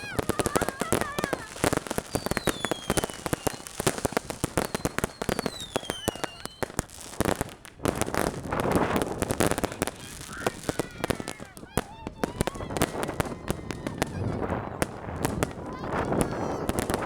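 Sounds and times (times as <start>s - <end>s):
firework whistle falling in pitch: 0.0s - 6.8s
firecrackers crackling: 0.0s - 17.0s.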